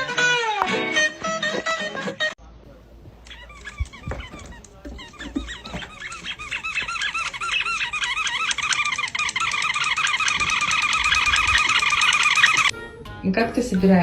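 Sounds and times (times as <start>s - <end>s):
small birds chirping: 3.3s - 12.7s.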